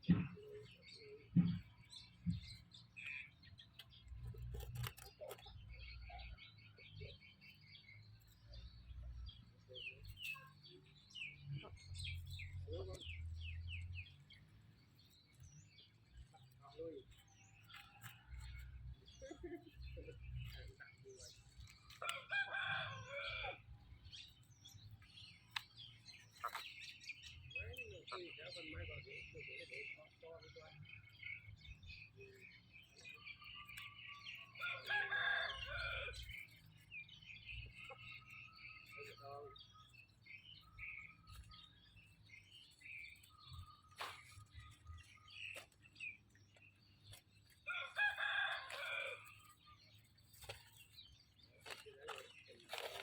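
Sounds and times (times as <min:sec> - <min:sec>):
small birds chirping: 0:00.0 - 0:53.0
rooster crowing: 0:34.6 - 0:36.2.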